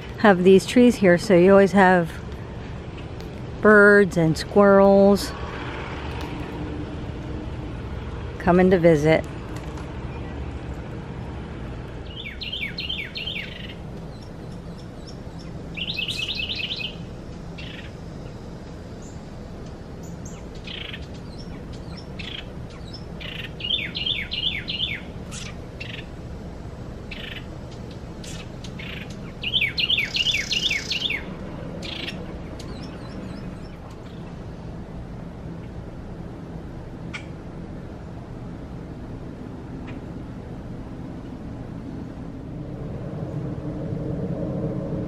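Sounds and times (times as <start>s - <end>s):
low background hum: 0.0s - 45.0s
songbird singing: 8.4s - 10.9s, 11.5s - 35.0s.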